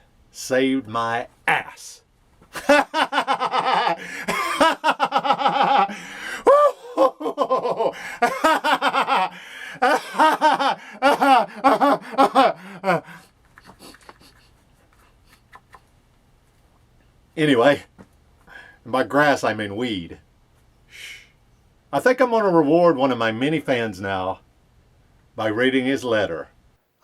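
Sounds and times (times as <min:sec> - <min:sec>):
man laughing hard: 0:02.6 - 0:14.5.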